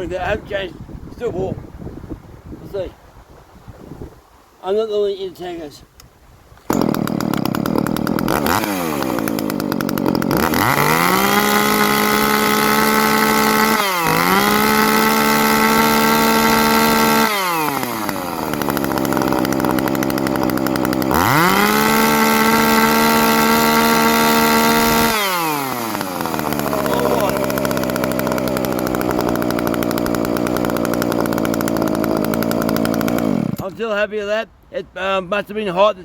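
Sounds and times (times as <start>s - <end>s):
chainsaw idling and revving: 6.7s - 33.8s.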